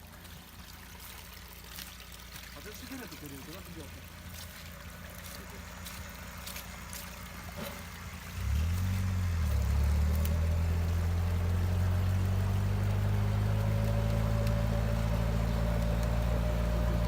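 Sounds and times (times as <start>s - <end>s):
off-road vehicle engine revving: 3.5s - 17.0s.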